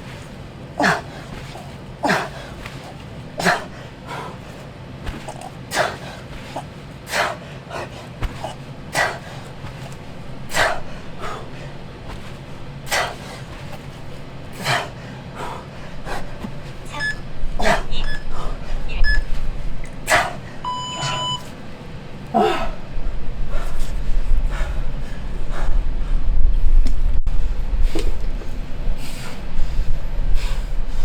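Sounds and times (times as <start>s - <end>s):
man breathing hard: 0.0s - 21.5s, 22.3s - 31.0s
low rumble: 8.2s - 31.0s
short electronic beeps: 16.9s - 17.3s, 18.0s - 18.3s, 19.0s - 19.3s, 20.6s - 21.5s.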